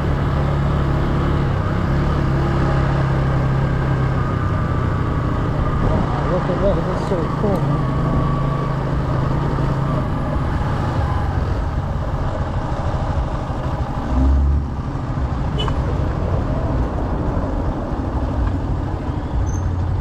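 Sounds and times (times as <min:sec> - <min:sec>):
motorcycle engine running: 0:00.0 - 0:20.0
road and wind noise: 0:00.0 - 0:20.0.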